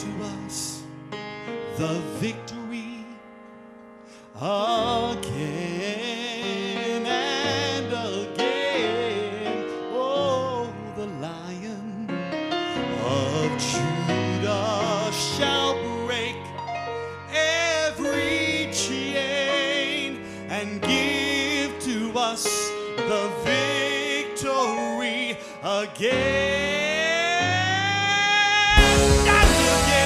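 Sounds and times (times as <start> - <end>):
piano and keyboard chords: 0.0 - 30.0
vibrato lead melody: 26.1 - 30.0.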